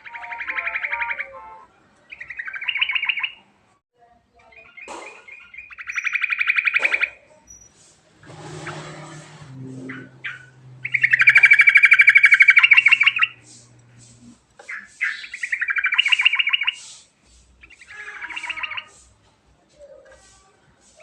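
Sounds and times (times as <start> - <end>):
bird singing rattling trills: 2.1 - 3.4, 4.5 - 7.8, 8.4 - 17.0, 17.6 - 19.0.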